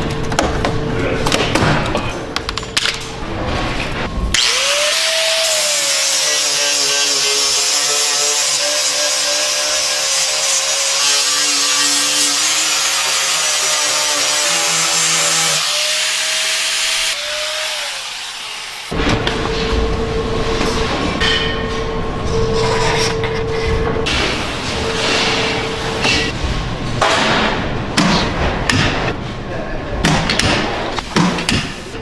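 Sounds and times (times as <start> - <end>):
power tool motor whining: 4.4 - 19.0.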